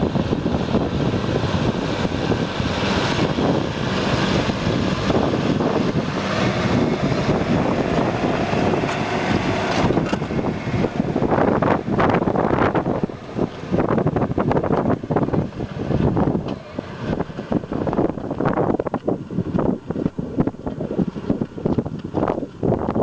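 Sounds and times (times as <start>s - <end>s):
tractor diesel engine running: 0.0s - 23.0s
wind buffeting microphone: 0.0s - 23.0s.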